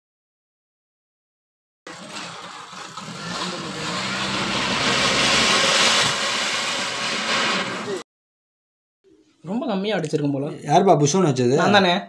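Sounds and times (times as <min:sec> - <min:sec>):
fountain firework hissing: 0:01.9 - 0:08.0.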